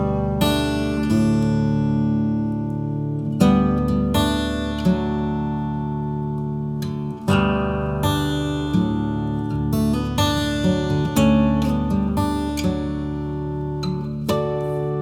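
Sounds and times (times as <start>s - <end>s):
gentle acoustic guitar: 0.0s - 15.0s.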